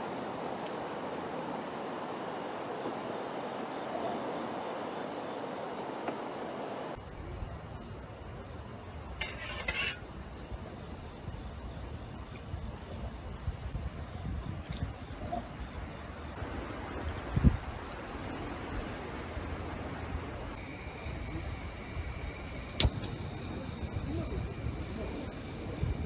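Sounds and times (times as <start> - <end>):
crickets chirring: 0.0 - 26.0
wind rumbling on microphone: 10.1 - 26.0
steady hiss: 15.7 - 26.0.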